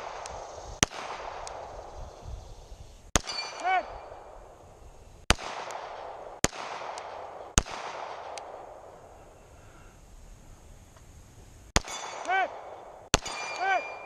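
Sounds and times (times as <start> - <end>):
gunshots with echo: 3.2 - 4.4, 5.3 - 8.9, 11.8 - 14.0.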